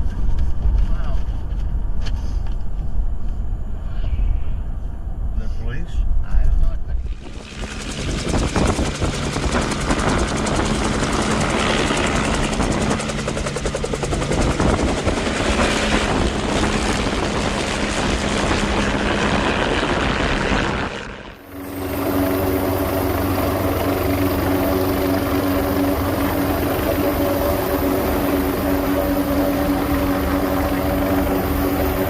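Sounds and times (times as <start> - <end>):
helicopter rotor chop: 6.9 - 32.0.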